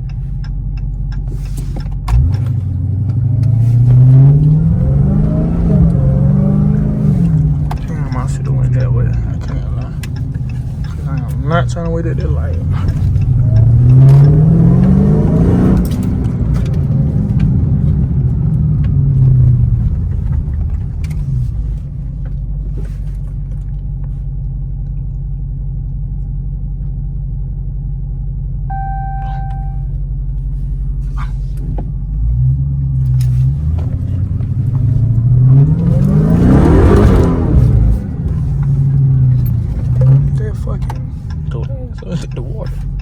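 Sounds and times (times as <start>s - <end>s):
car engine revving: 0.0s - 23.9s, 28.7s - 29.9s, 30.6s - 43.0s
low exhaust rumble: 0.0s - 43.0s
short electronic beep: 28.7s - 29.9s.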